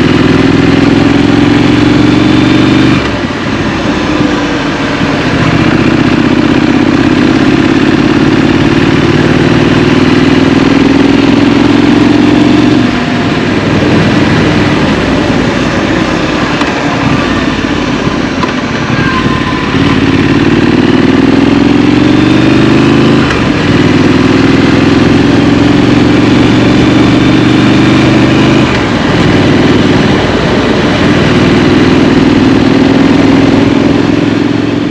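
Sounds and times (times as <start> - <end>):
motorcycle engine shifting gears: 0.0 - 34.9
road noise: 0.0 - 34.9
wind noise: 12.8 - 20.4.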